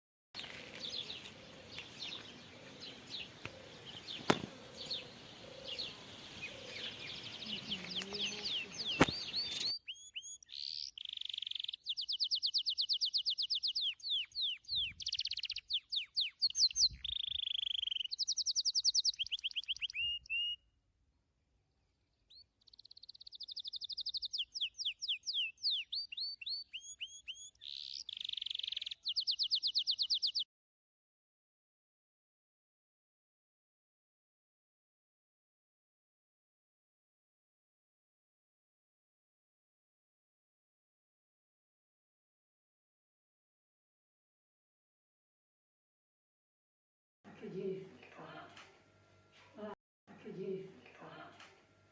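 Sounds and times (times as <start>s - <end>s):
songbirds singing: 0.4s - 20.7s, 21.8s - 30.5s.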